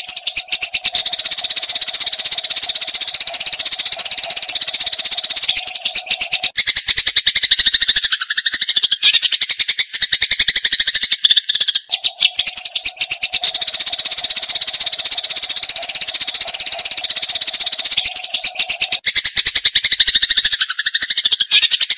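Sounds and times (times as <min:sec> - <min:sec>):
sparrow chattering: 0:00.0 - 0:21.9.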